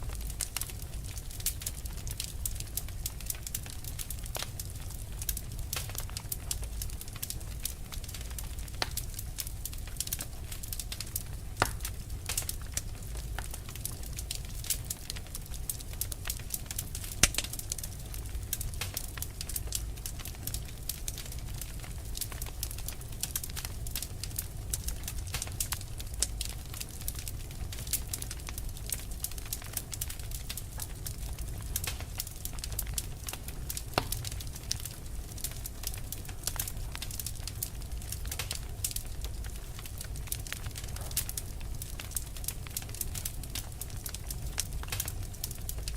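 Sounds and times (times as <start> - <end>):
low fire rumble: 0.0 - 45.9
wood fire crackling: 0.0 - 45.9.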